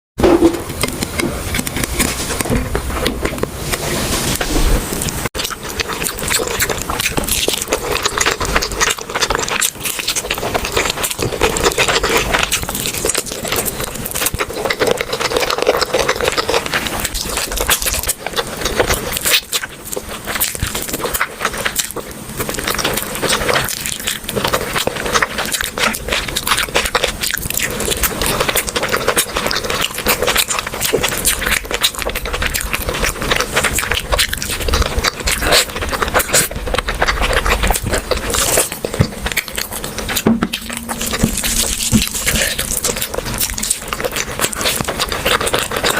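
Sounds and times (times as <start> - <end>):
crunchy chewing: 0.2 - 45.9
scraping: 36.2 - 45.9.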